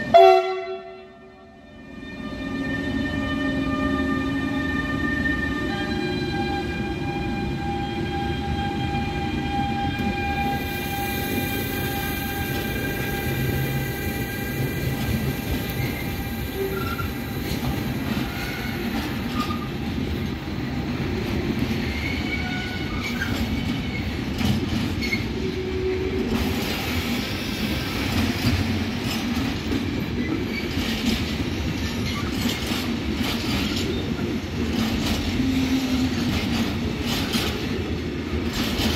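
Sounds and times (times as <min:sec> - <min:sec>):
train wheels rumbling on rail: 0:01.7 - 0:38.9
rail joint clicks: 0:09.0 - 0:38.9.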